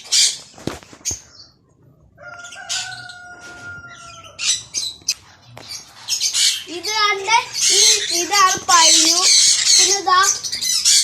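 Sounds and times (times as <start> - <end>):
caged birds squawking: 0.0 - 11.0.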